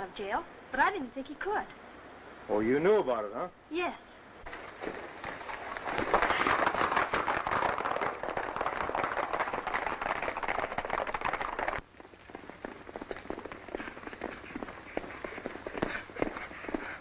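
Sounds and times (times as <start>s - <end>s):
horses galloping hoofbeats: 4.4s - 17.0s.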